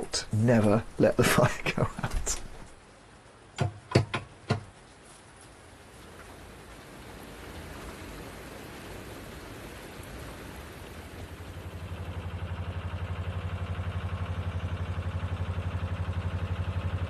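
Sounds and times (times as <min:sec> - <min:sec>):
steady rushing hiss: 0:00.0 - 0:12.4
diesel engine throbbing: 0:11.4 - 0:17.0.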